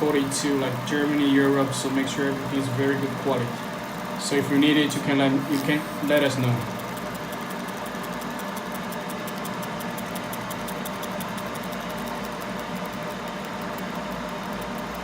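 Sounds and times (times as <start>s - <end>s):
rapid faint high ticking: 0.0s - 14.1s
machine hum and whir: 0.0s - 15.0s.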